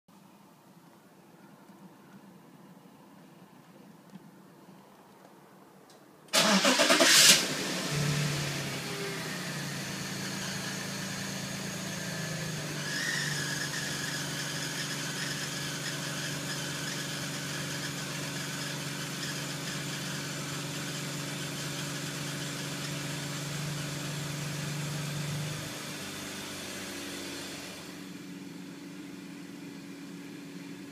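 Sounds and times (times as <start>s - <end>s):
engine starter cranking: 6.3s - 7.6s
car engine fast idle: 6.3s - 30.9s.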